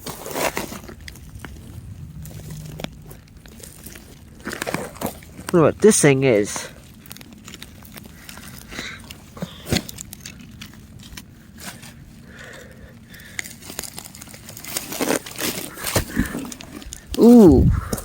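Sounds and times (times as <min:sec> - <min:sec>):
rummaging through junk: 0:00.0 - 0:18.0.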